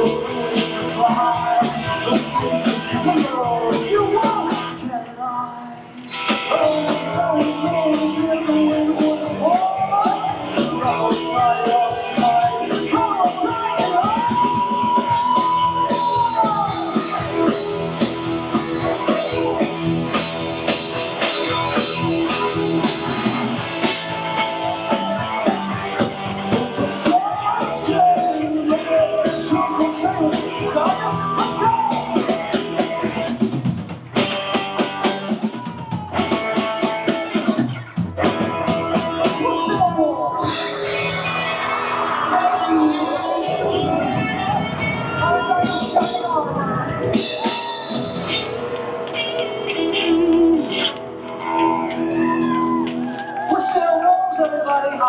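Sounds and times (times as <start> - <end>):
rock band playing: 0.0 - 54.2.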